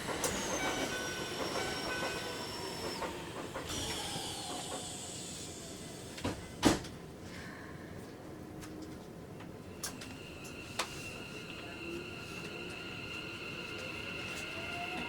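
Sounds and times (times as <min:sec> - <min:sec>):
electric train motor whine: 0:00.0 - 0:06.3, 0:09.8 - 0:15.0.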